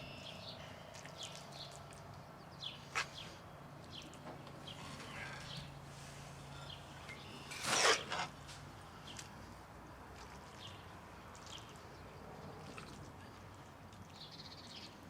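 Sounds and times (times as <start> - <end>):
distant bird chirps: 0.0 - 8.4
faint outdoor ambience: 0.0 - 15.0.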